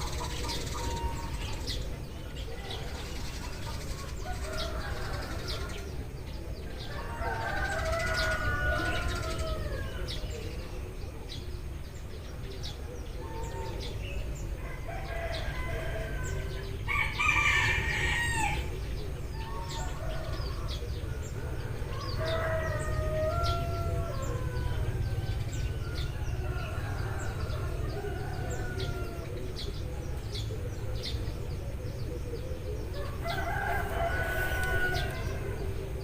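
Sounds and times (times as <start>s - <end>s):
sparrows chirping: 0.0s - 36.0s
rooster crowing: 6.8s - 10.2s, 14.7s - 18.7s, 21.9s - 29.4s, 33.0s - 35.9s.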